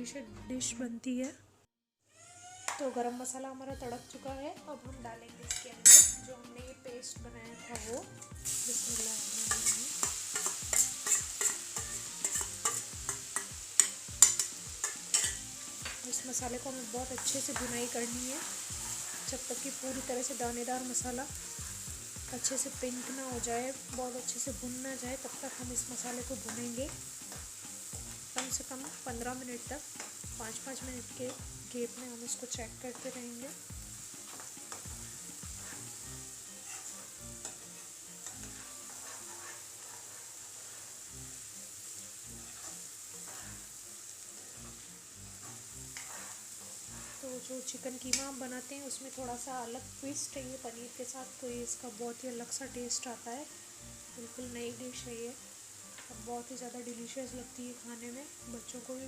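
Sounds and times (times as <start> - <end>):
oil sizzling: 2.4 - 59.0
spoon scraping a pan: 5.5 - 6.2, 7.7 - 21.8, 22.4 - 41.1, 42.3 - 47.8.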